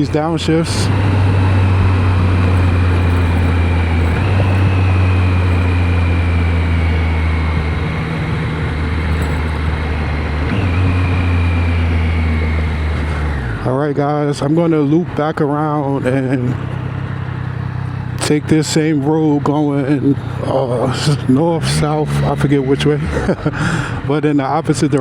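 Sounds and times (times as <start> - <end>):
motorcycle engine downshifting: 0.0 - 25.0
wind and road noise: 0.0 - 25.0.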